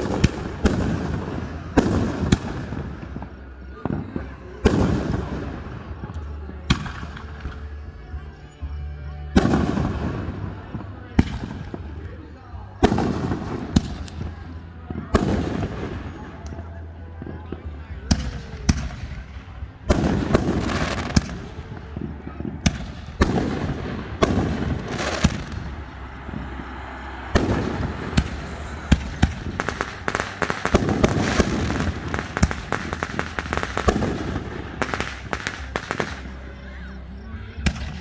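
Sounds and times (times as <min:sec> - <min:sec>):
firework cracks and crackling: 0:00.0 - 0:07.7, 0:09.3 - 0:16.7, 0:17.3 - 0:36.6, 0:37.6 - 0:38.0
firework shells booming: 0:19.9 - 0:36.3.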